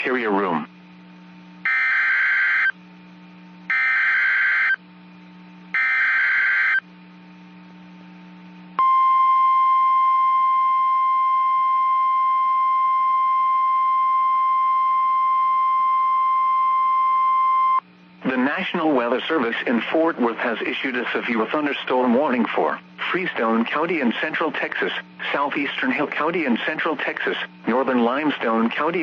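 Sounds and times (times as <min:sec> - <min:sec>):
steady warning alarm tone: 0:01.6 - 0:02.8, 0:03.7 - 0:04.8, 0:05.7 - 0:06.9.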